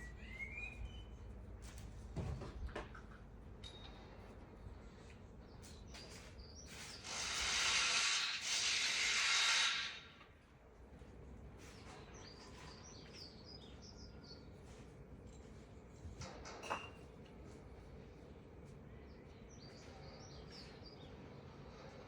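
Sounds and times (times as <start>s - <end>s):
hiss of water spray: 7.0s - 10.1s.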